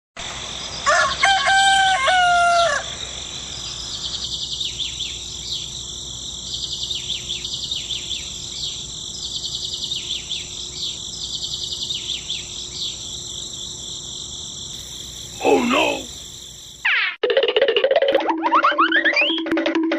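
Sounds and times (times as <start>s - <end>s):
rooster crowing: 0.8s - 3.0s
small birds chirping: 3.6s - 16.8s.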